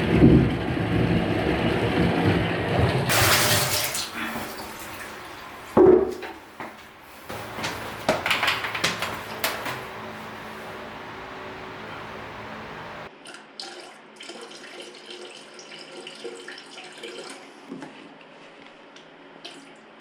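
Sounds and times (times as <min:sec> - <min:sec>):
kitchen tap running: 0:03.1 - 0:06.1.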